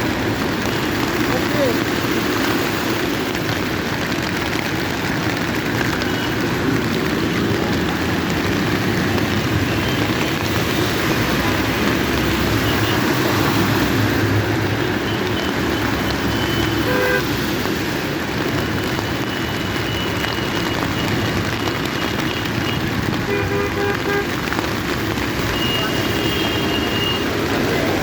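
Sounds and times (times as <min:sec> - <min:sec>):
heavy rain: 0:00.0 - 0:28.0
road traffic: 0:00.0 - 0:28.0
car horn toot: 0:16.5 - 0:17.4, 0:23.3 - 0:24.4, 0:25.5 - 0:27.3.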